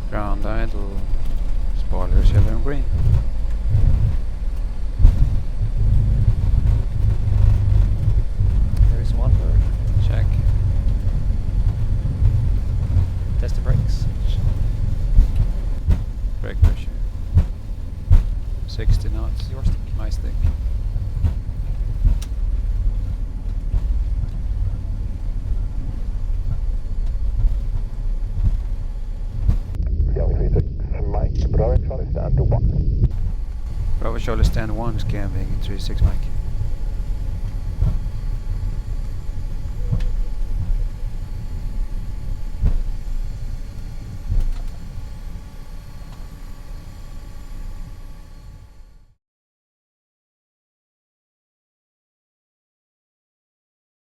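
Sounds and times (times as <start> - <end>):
jet engines at ground idle: 0.0 - 29.8, 33.1 - 49.2
faint steady tones: 0.0 - 49.1
low rumble in airliner cockpit: 0.0 - 49.2.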